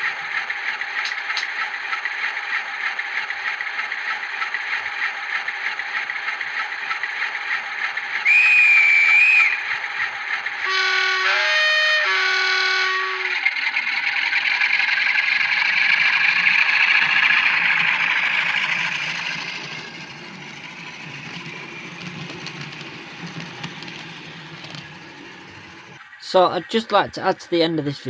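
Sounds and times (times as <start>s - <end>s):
model diesel engine sound: 0.0s - 28.0s
low running hum: 5.2s - 28.0s
two-tone horn through small speaker: 10.7s - 13.4s.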